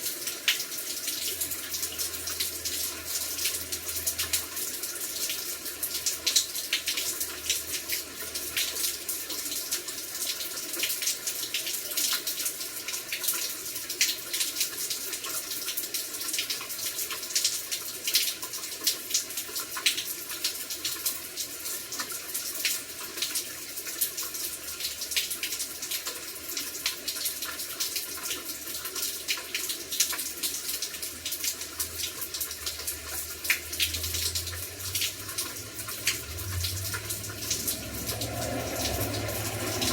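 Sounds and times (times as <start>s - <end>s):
heavy rain falling: 30.3s - 39.9s.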